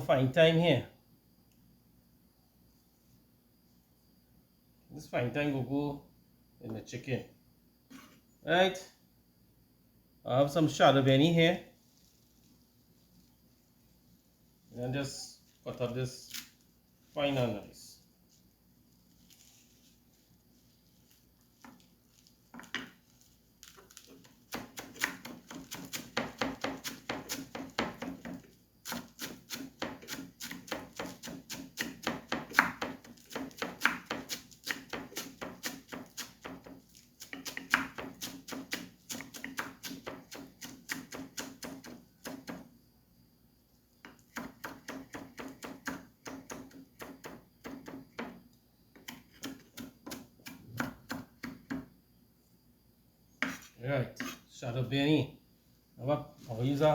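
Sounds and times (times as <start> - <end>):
knife chopping on cutting board: 24.5 - 42.6, 44.1 - 48.4, 49.0 - 51.8, 53.4 - 54.4.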